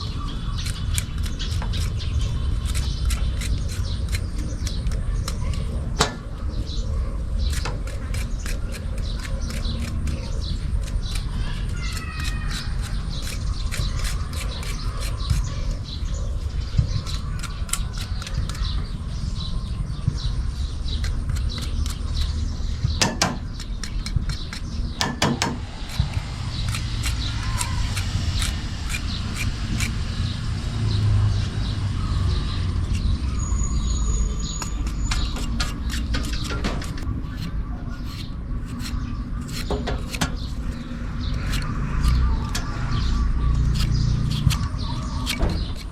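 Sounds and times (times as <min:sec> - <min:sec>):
birds chirping: 0:00.0 - 0:45.9
sharp clicks and knocks: 0:20.9 - 0:29.9, 0:34.5 - 0:42.8
low rumble: 0:22.1 - 0:35.8.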